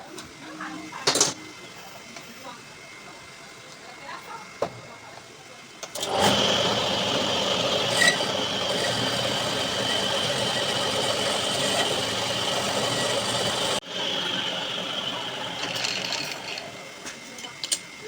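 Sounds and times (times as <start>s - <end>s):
power tool whining and grinding: 5.9s - 17.1s.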